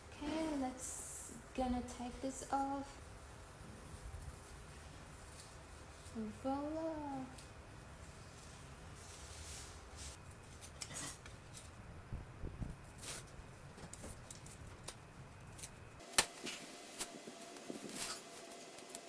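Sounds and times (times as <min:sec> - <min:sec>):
art materials clicking and rustling: 0:13.2 - 0:16.3.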